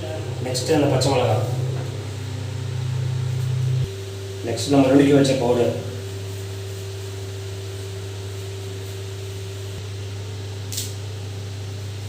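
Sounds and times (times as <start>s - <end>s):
low hum: 0.0s - 10.6s.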